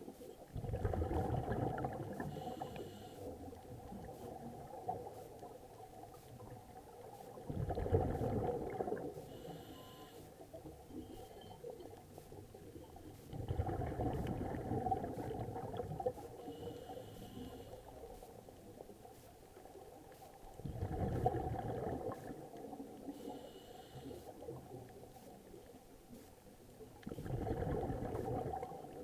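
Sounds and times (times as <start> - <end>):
water churning and sloshing: 0.0 - 2.7, 3.4 - 17.4, 27.0 - 29.0.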